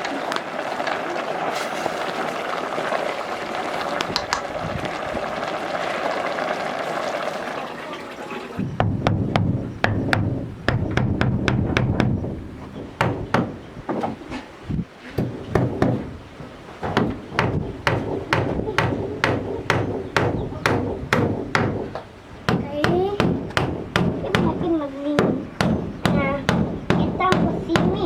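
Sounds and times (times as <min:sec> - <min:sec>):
sharp blows on wood: 0:08.7 - 0:14.3, 0:15.1 - 0:28.0.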